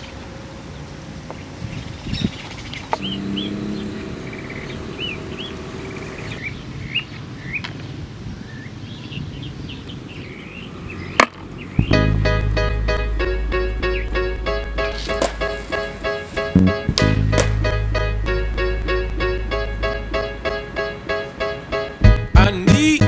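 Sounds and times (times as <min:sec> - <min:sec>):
small birds chirping: 0:00.0 - 0:12.4
music with steady beat: 0:11.8 - 0:23.0.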